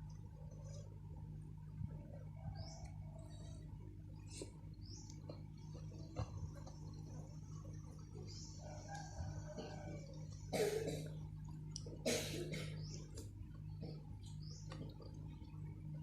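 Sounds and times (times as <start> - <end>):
low hum: 0.0 - 16.0
faint bird chirps: 2.1 - 10.3.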